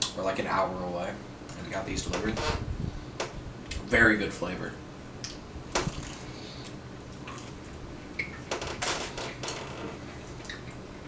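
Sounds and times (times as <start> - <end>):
eating noises: 5.2 - 7.8.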